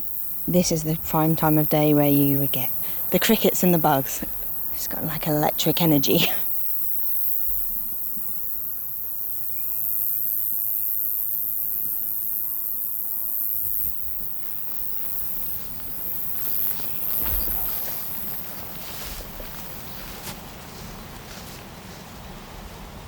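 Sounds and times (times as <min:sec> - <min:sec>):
crickets and grasshoppers stridulating: 0:00.0 - 0:23.0.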